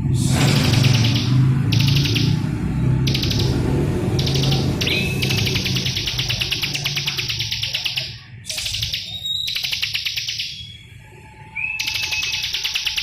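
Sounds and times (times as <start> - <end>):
bird singing rattling trills: 0.5 - 13.0
thin whistled bird notes: 4.2 - 10.9, 11.5 - 13.0.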